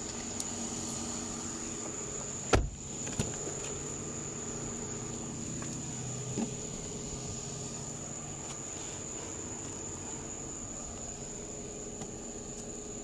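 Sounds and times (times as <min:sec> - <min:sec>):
insect drone: 0:00.0 - 0:13.0
vehicle idling hum: 0:00.0 - 0:13.0
loud thump: 0:02.5 - 0:03.3.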